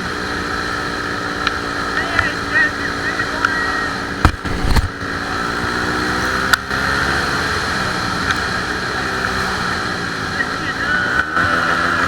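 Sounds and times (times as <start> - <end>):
vehicle engine running: 0.0 - 12.0
sharp click: 4.2 - 5.0.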